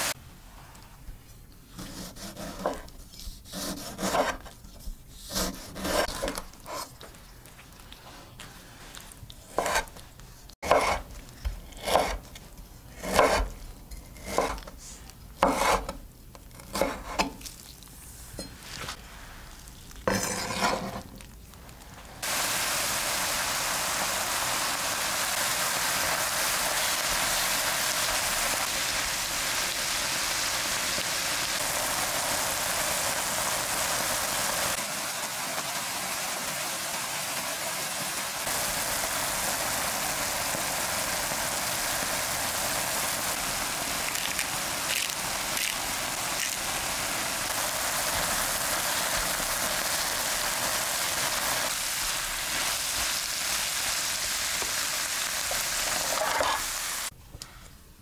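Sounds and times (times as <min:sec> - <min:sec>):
knife scraping a cutting board: 0:01.8 - 0:06.9, 0:09.5 - 0:10.0, 0:10.6 - 0:11.1, 0:15.4 - 0:16.0, 0:20.1 - 0:21.1, 0:56.1 - 0:56.7
meat sizzling in a frying pan: 0:22.2 - 0:57.1.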